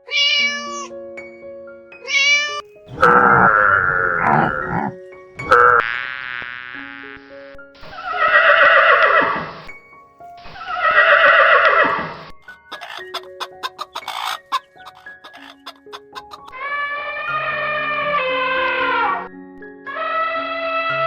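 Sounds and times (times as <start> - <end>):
horse whinnying: 2.1 - 5.9, 7.9 - 9.7, 10.5 - 12.2.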